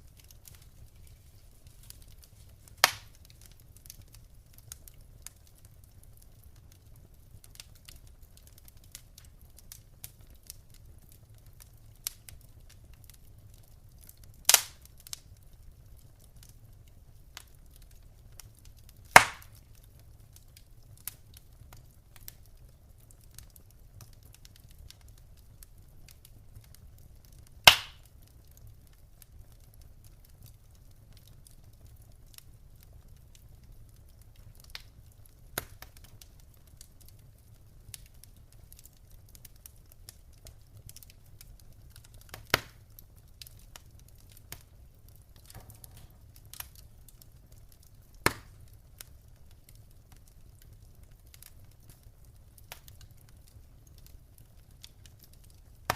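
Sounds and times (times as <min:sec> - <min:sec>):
fire popping: 0:00.0 - 0:55.9
wood fire crackling: 0:00.0 - 0:55.9.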